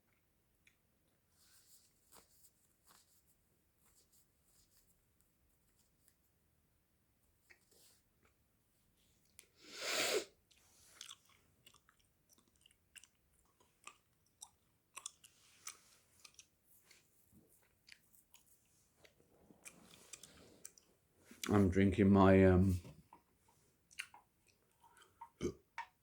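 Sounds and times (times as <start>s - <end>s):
gum chewing mouth clicks: 10.5s - 17.0s, 17.6s - 21.5s, 23.9s - 26.0s.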